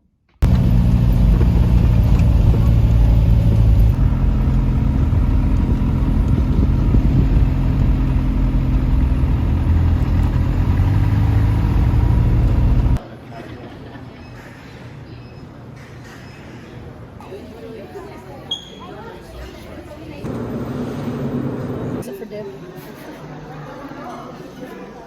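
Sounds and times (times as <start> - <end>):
vehicle engine humming: 0.4 - 13.0, 20.3 - 22.0.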